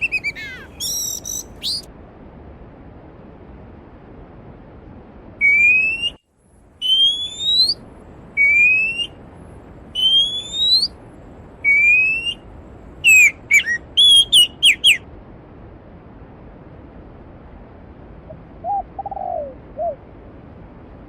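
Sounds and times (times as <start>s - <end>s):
songbird whistling: 0.0s - 1.9s, 5.4s - 6.2s, 6.8s - 7.8s, 8.4s - 9.2s, 10.0s - 11.0s, 11.6s - 12.4s, 13.0s - 15.0s.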